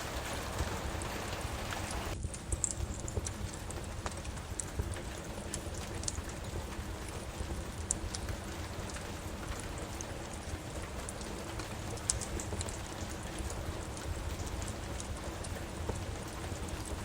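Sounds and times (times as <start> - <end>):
steady rain falling: 0.0 - 17.0
wood fire crackling: 0.0 - 17.0.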